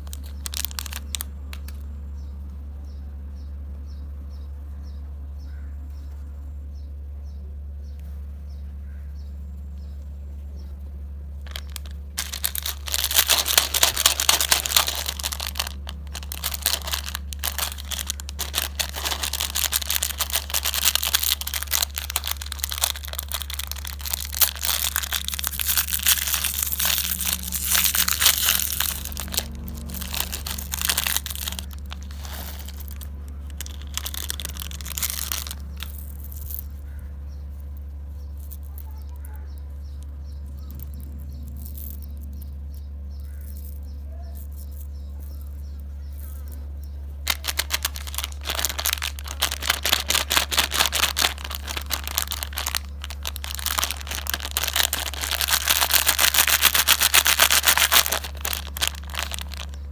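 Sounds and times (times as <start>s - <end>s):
plastic wrapper crinkling and tearing: 0.0s - 1.8s, 11.4s - 36.8s, 38.3s - 39.3s, 47.2s - 59.9s
steady low hum: 0.0s - 59.9s.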